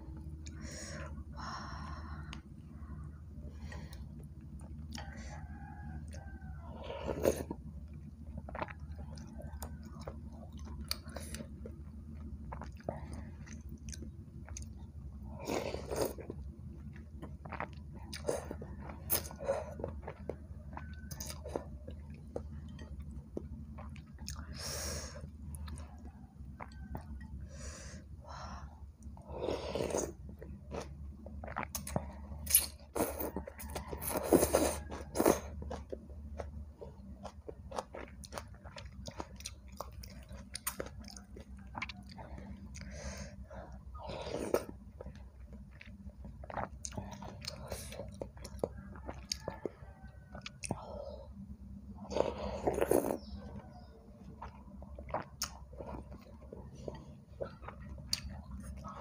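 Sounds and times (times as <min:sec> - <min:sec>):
chewing food: 0:00.0 - 0:59.0
low hum: 0:00.0 - 0:59.0
sipping and slurping soup: 0:52.0 - 0:59.0.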